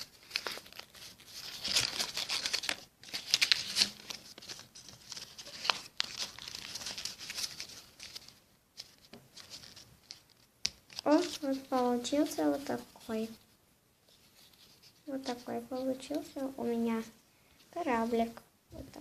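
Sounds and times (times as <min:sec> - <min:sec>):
paper rustling and crinkling: 0:00.0 - 0:13.5, 0:14.1 - 0:16.4.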